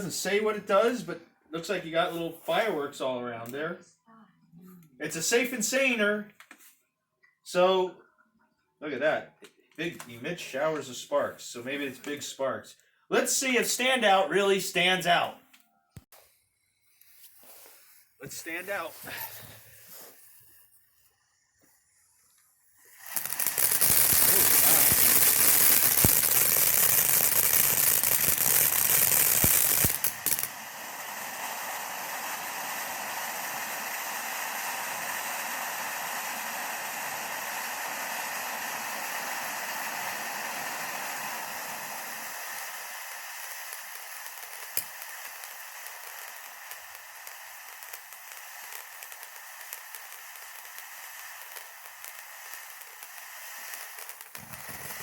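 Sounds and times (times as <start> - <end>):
firework fountain hissing: 0.0 - 2.8, 5.1 - 6.0, 17.3 - 55.0.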